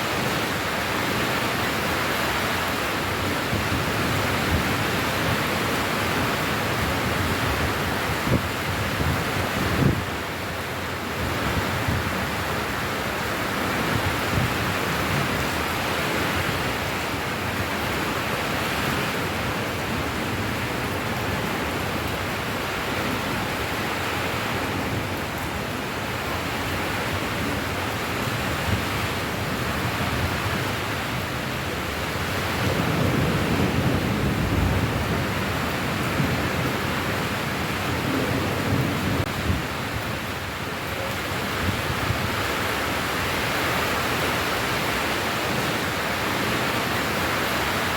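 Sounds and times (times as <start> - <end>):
heavy rain: 0.0 - 47.9.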